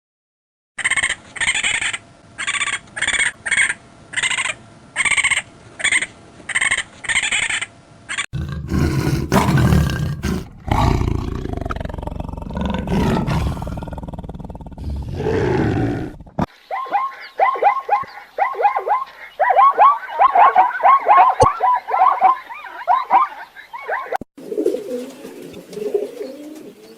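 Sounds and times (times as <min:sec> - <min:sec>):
deep loud roar: 0:08.4 - 0:16.5.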